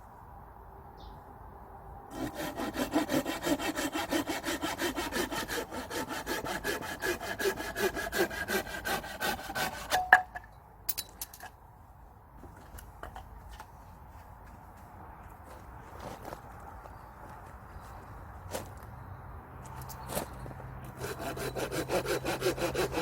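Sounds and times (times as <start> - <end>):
saw cutting wood: 2.1 - 10.1, 20.8 - 23.0.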